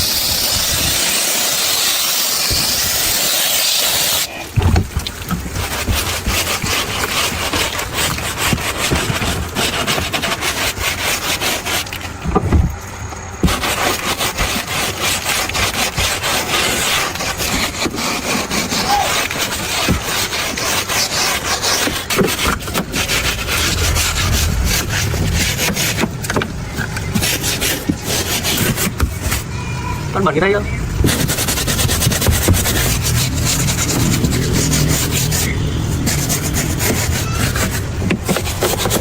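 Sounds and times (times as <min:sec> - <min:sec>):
hand scraping strokes: 0:00.0 - 0:39.0.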